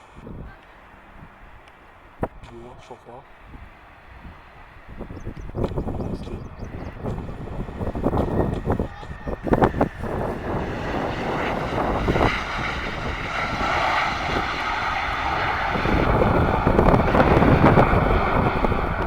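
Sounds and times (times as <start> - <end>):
airplane engines roaring: 0.0 - 19.0.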